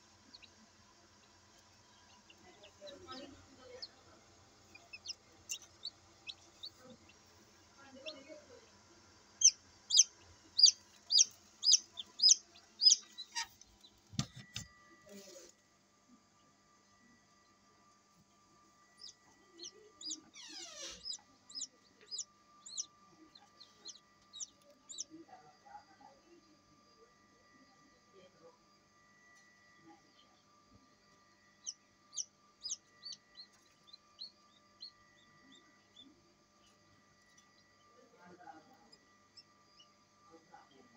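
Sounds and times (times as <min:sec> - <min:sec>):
chicks peeping: 0:00.0 - 0:08.8, 0:09.4 - 0:14.3, 0:19.0 - 0:25.1, 0:31.6 - 0:36.0
incubator humming: 0:00.0 - 0:15.0, 0:18.6 - 0:25.0.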